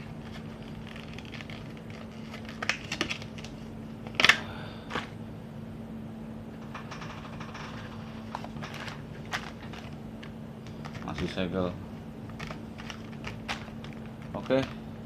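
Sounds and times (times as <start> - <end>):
plastic packaging crinkling: 0.0 - 3.6, 12.3 - 14.8.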